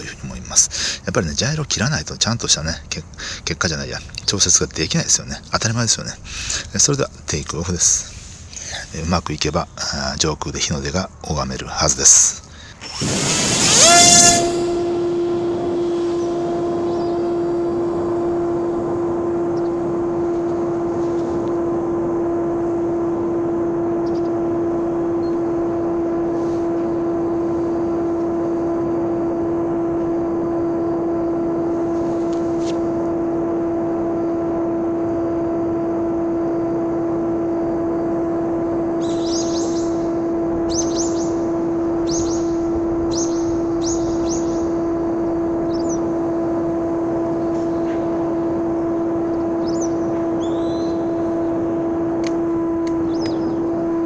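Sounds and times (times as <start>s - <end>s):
model airplane electric motor humming: 11.9s - 54.0s.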